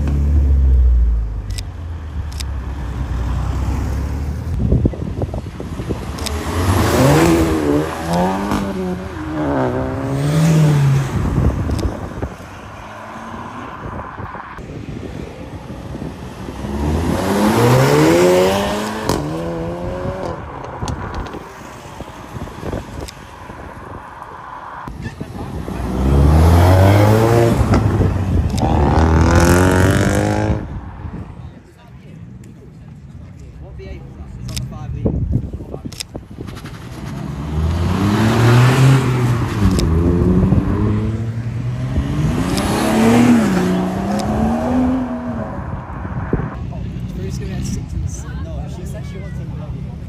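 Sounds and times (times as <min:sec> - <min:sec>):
cars accelerating away: 0:05.6 - 0:14.2, 0:16.1 - 0:21.0, 0:25.5 - 0:30.8, 0:36.6 - 0:46.6.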